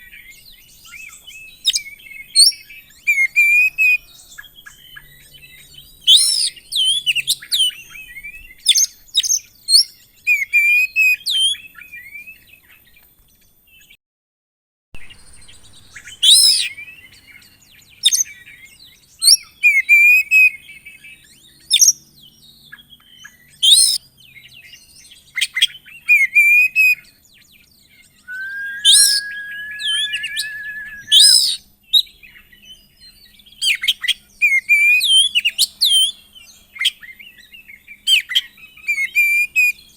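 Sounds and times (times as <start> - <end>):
bird singing whistled phrases: 28.3 - 31.6
bird trilling: 28.3 - 31.6.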